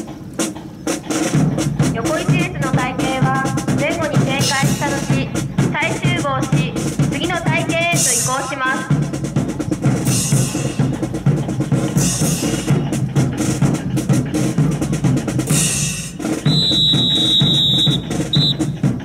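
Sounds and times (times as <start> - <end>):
snare drum rolls: 0.0 - 19.0
bass drum: 1.3 - 19.0
high steady whistle: 16.4 - 18.8.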